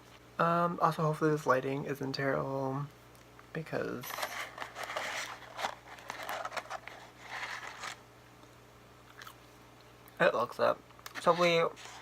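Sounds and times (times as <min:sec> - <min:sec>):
paper packaging rustling: 0:04.0 - 0:08.0, 0:11.1 - 0:12.0.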